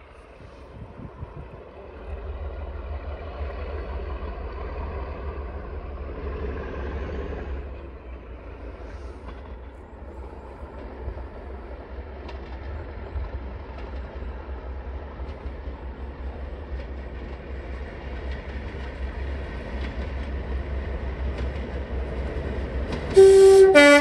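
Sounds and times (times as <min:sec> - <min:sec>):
train approaching rumble: 0:00.0 - 0:24.0
wind on microphone: 0:00.4 - 0:01.7.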